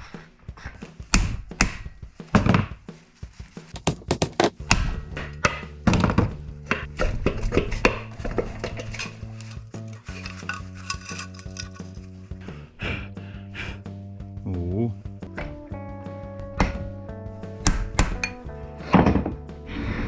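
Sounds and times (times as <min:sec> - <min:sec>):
sharp knocks and clatters: 0:03.8 - 0:04.6.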